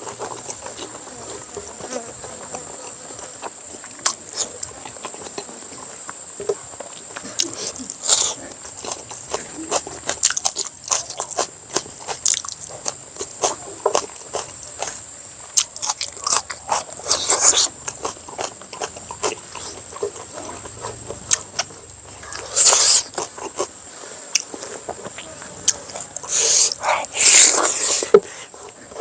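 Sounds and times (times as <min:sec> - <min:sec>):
chewing and smacking food: 0:00.0 - 0:29.0.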